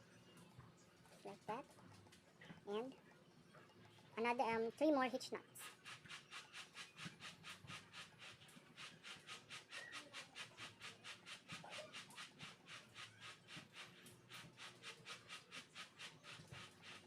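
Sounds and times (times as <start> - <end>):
rhythmic pulsing hiss: 4.2 - 17.0.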